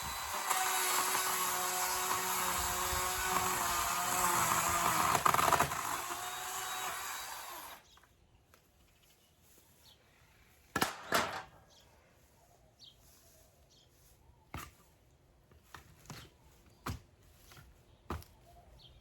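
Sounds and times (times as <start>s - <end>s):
power tool on wood: 0.0s - 7.9s.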